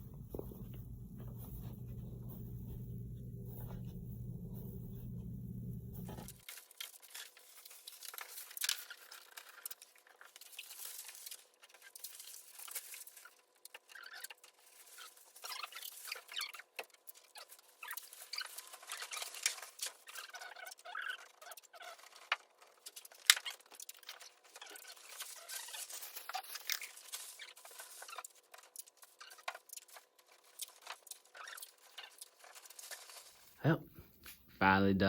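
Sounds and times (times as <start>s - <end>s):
wrapping paper crinkling: 6.0s - 33.6s.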